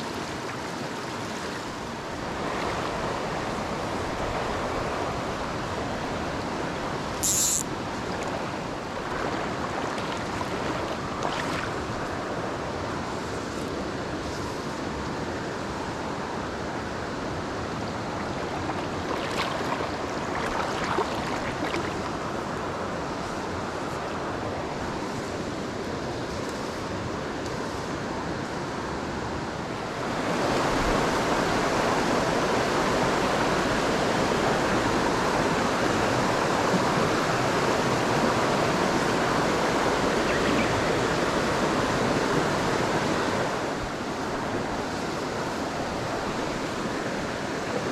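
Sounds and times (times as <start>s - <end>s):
stream rushing over rocks: 0.0s - 13.0s, 16.0s - 24.6s, 29.6s - 47.9s
short high hiss: 7.2s - 7.7s.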